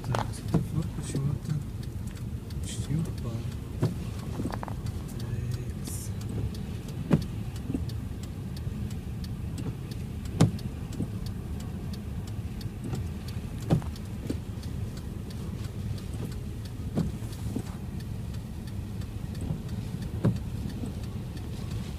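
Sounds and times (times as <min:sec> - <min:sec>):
car road and engine rumble: 0:00.0 - 0:21.9.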